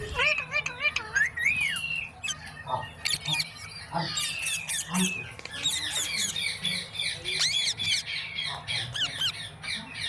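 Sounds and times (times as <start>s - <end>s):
parrot whistled chirps and squawks: 0.0s - 9.9s.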